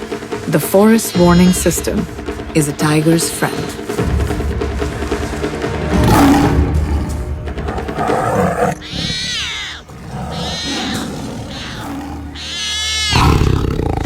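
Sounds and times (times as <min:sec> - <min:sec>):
wild animal calls: 0:05.9 - 0:14.0.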